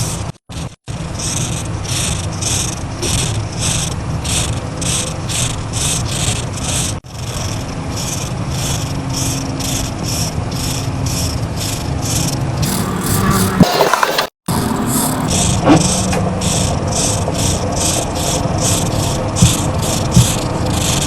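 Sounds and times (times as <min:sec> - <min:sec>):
marker rubbing across paper: 0:12.6 - 0:16.0, 0:18.6 - 0:21.0
steady low hum: 0:12.6 - 0:21.0.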